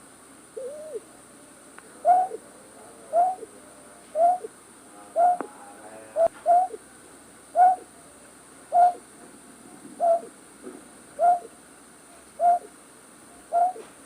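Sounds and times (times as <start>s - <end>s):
night bird call: 0.6s - 2.5s, 3.1s - 5.6s, 6.2s - 6.8s, 7.5s - 9.0s, 10.0s - 10.3s, 11.2s - 13.9s.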